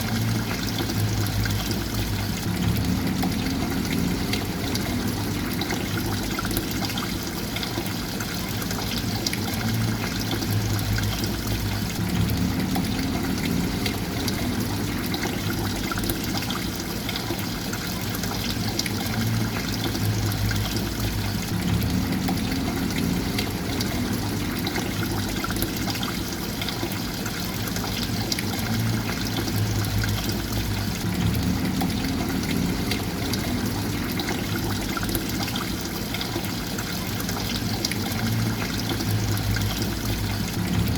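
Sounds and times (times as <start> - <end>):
water trickling and pouring: 0.0 - 40.9
low rumble: 0.4 - 6.6, 10.5 - 15.9, 20.0 - 25.8, 28.8 - 35.3, 39.0 - 40.9.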